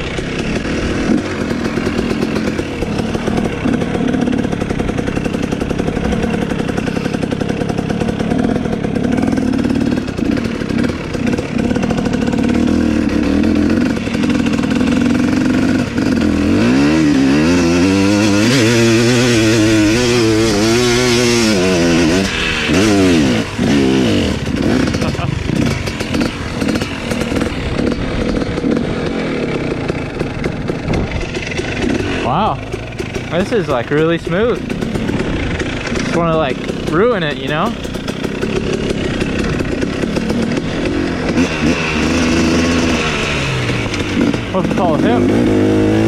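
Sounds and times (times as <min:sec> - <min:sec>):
dirt bike engine revving: 0:00.0 - 0:46.0.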